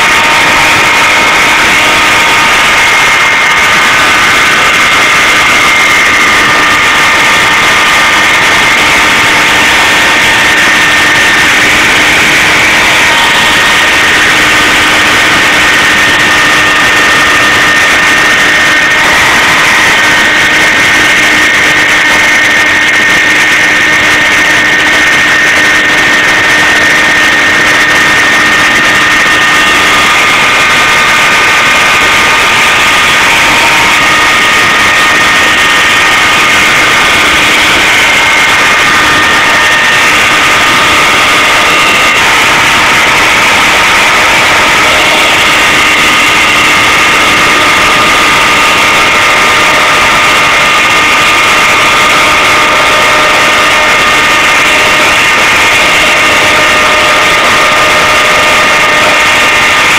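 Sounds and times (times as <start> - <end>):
machine whining: 0.0 - 59.9.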